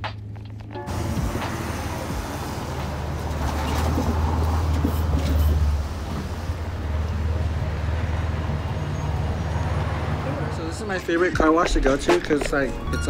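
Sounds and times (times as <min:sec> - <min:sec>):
music: 0:00.0 - 0:04.2, 0:11.0 - 0:13.0
vehicle engine drone: 0:00.0 - 0:11.4
wind and road noise: 0:00.0 - 0:13.0.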